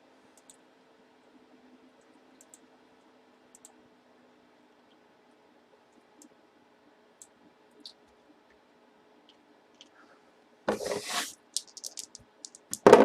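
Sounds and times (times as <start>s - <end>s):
faint clicks: 2.0s - 3.8s.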